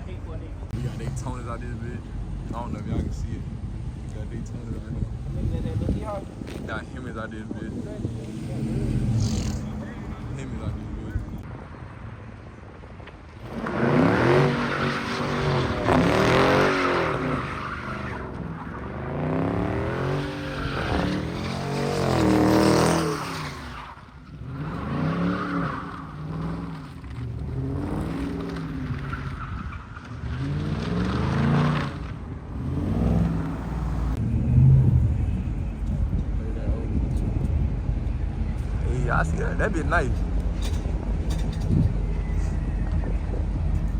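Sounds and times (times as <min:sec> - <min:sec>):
tires squealing: 0:00.7 - 0:11.4, 0:13.4 - 0:36.5, 0:38.1 - 0:43.9
car engine revving: 0:04.0 - 0:11.4, 0:13.4 - 0:23.8, 0:30.1 - 0:43.9.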